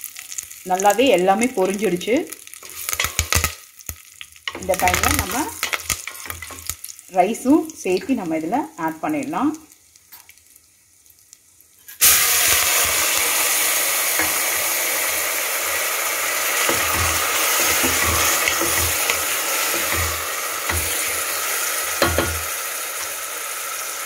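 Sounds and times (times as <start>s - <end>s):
rice sizzling in butter: 0.0s - 24.0s
wooden spatula scraping pan: 16.6s - 21.4s.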